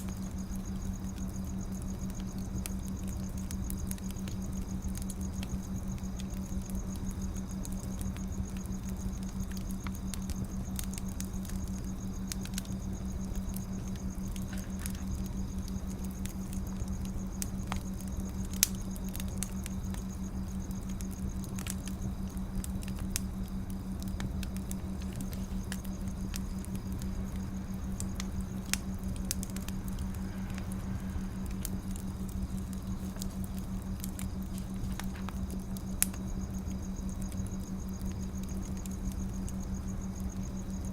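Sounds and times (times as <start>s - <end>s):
fire hissing: 0.0s - 40.9s
wood fire crackling and popping: 0.0s - 40.9s
low hum: 21.5s - 38.4s.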